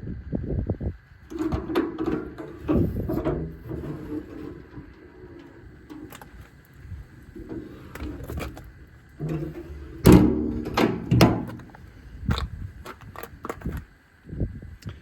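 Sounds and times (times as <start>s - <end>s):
knocks and clunks: 1.3s - 13.8s.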